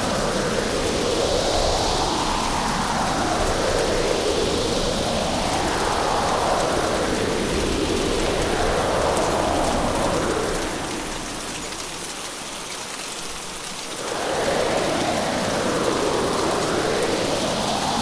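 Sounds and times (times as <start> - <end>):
strong wind: 0.0 - 11.3, 14.0 - 18.0
heavy rain: 0.0 - 18.0.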